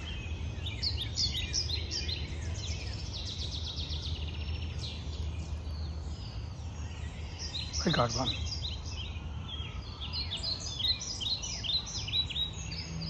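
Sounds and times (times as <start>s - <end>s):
songbirds chirping and trilling: 0.0s - 13.0s.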